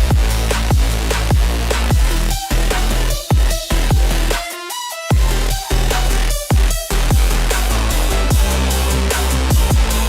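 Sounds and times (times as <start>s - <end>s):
kick drum booms: 0.0s - 2.5s, 3.2s - 4.3s, 5.1s - 5.4s, 6.4s - 7.5s, 8.3s - 8.8s, 9.5s - 10.0s
bass-boosted electronic music: 0.0s - 10.0s.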